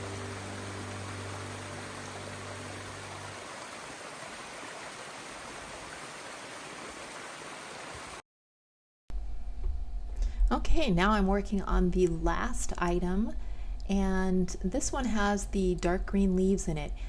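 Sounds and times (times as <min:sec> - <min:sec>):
low sustained music notes: 0:00.0 - 0:04.5.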